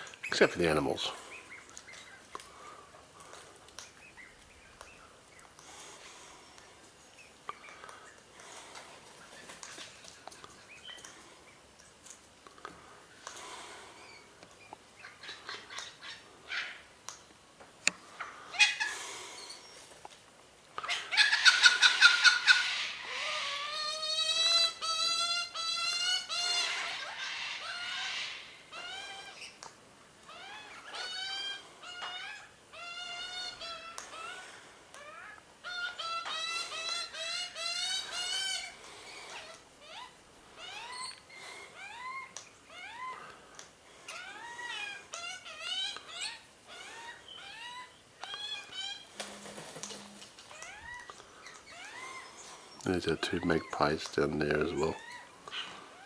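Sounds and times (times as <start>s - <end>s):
long ringing bird calls: 30.3s - 43.3s.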